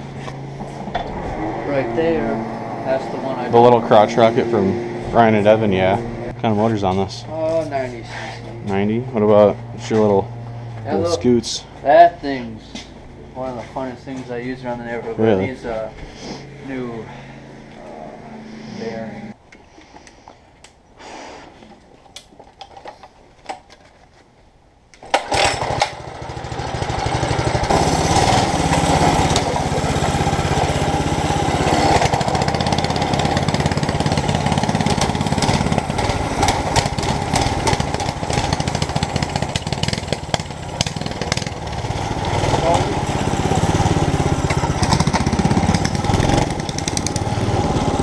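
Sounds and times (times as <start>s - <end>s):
mini bike engine running: 25.1s - 48.0s.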